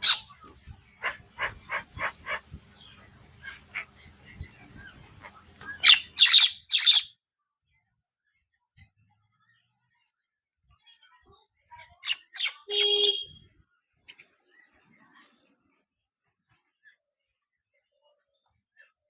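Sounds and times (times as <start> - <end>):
parrot chirps and squawks: 0.0 - 7.1, 11.9 - 13.4.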